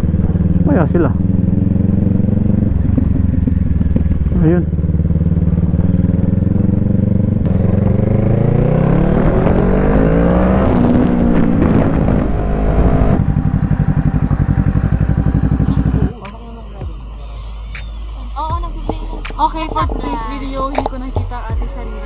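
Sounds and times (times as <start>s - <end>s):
motorcycle engine idling: 0.0s - 8.4s, 13.1s - 17.7s
motorcycle engine pulling away: 0.0s - 16.1s.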